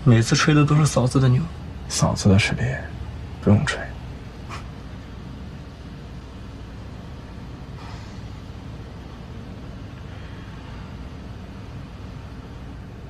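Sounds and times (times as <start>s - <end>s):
airliner cabin drone: 0.0s - 13.0s
faint brief hiss: 7.8s - 8.4s.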